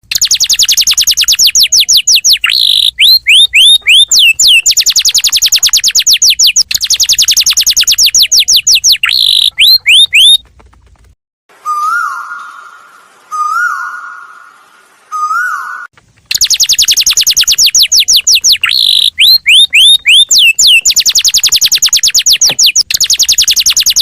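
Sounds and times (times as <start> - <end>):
bird whistling downward notes: 0.1 - 10.4, 11.5 - 24.0
lower bird call rising and falling: 11.5 - 24.0.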